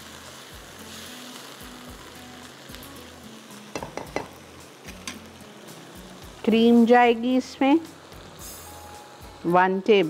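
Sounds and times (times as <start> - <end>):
vegetables sizzling in a wok: 0.0 - 10.0
spatula knocking against pan: 3.8 - 4.4.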